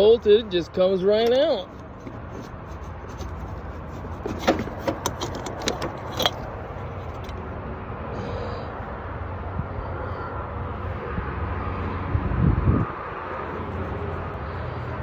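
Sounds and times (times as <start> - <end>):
clicks knocks and rattles: 3.1 - 7.4.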